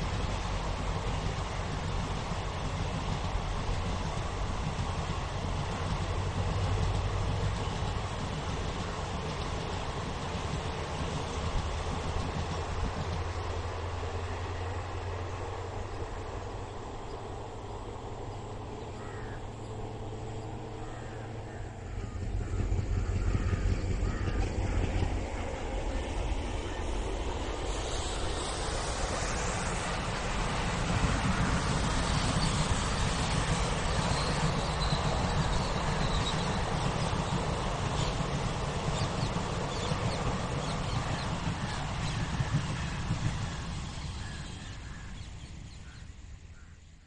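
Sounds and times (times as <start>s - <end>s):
distant train rumbling: 0.0s - 47.0s
crows cawing: 19.0s - 19.5s, 23.0s - 24.8s.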